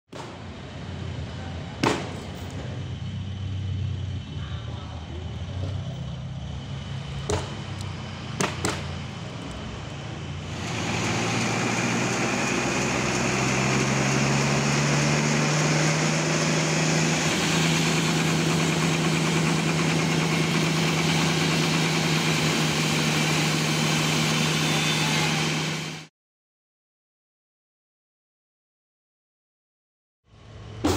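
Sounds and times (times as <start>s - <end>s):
sawmill engine running: 0.2s - 26.1s
sharp knocks: 8.4s - 8.9s
saw cutting through log: 10.5s - 26.0s.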